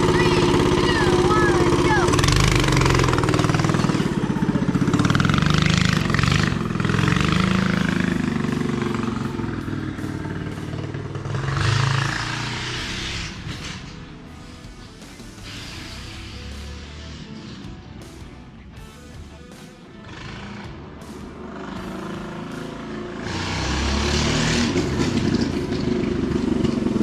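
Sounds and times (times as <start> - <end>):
mini bike engine revving: 0.0 - 17.8, 20.0 - 27.0.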